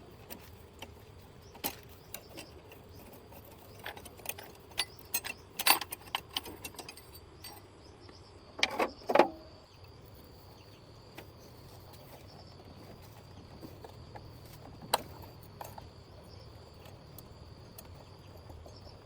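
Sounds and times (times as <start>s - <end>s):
clicks and light knocks: 11.1s - 16.0s.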